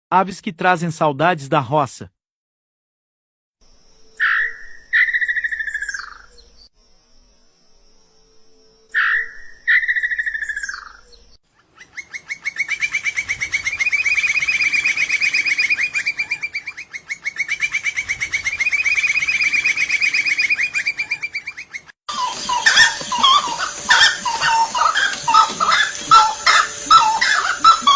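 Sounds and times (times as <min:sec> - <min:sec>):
bird trilling: 0:11.7 - 0:27.9
bird whistling falling notes: 0:11.8 - 0:27.9.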